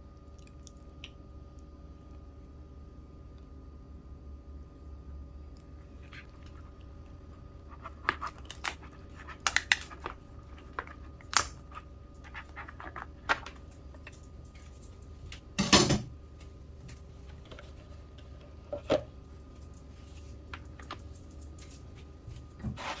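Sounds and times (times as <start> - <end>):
low steady hum: 0.0 - 23.0
shell clicking and crunching: 7.8 - 15.0.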